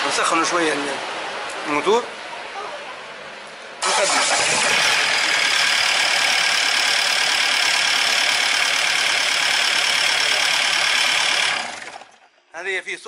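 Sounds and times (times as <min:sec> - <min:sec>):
diesel engine running harshly: 0:03.8 - 0:12.4.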